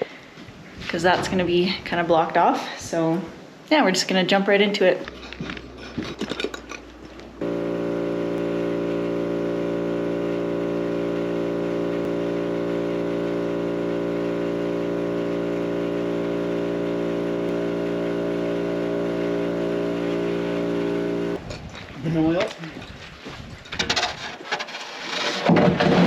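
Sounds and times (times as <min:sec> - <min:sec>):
small engine droning steadily: 0:05.6 - 0:21.6.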